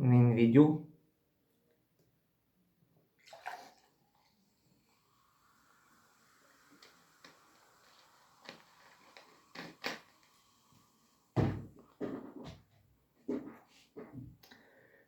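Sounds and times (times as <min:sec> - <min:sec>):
loud thump: 0:11.4 - 0:11.7.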